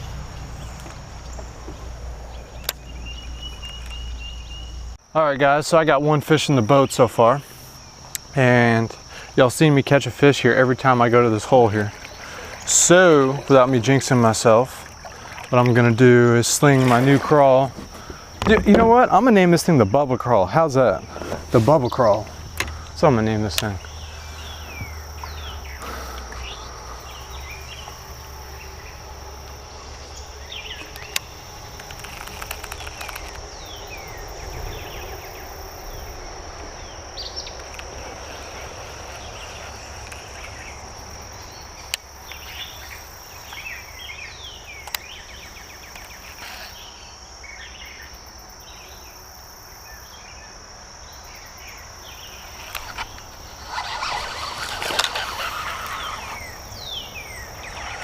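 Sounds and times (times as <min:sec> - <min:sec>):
sharp clicks: 0:30.8 - 0:33.4
rustling noise: 0:31.8 - 0:33.4
high-pitched insect drone: 0:51.2 - 0:58.0.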